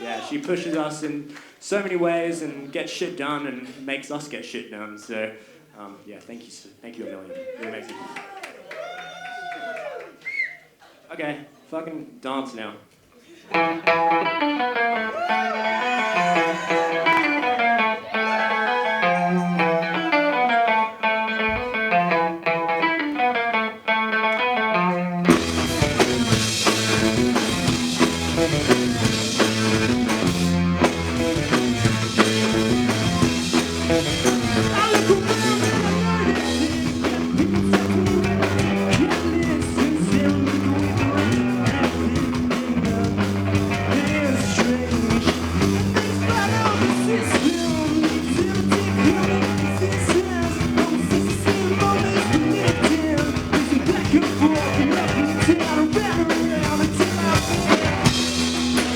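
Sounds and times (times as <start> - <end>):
person singing: 13.5 - 23.4, 31.2 - 58.2
rock band playing: 13.5 - 58.9
solo electric guitar: 13.5 - 58.9.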